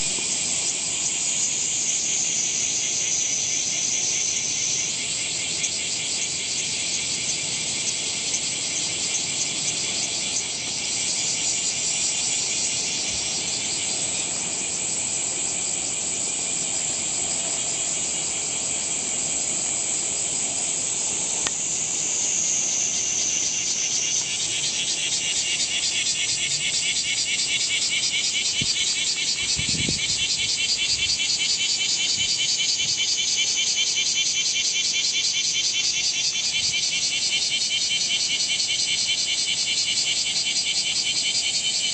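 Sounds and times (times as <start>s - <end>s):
cicadas singing: 0.0s - 41.9s.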